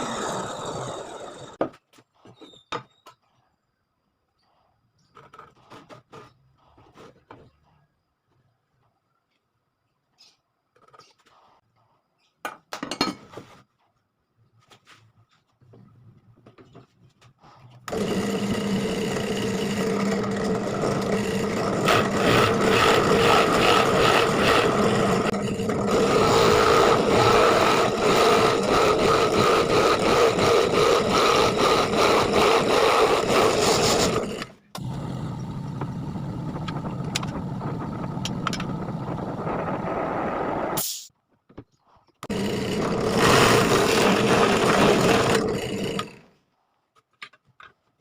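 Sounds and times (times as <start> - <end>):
power tool working wood: 0.0 - 1.6, 17.9 - 39.0, 42.3 - 46.2.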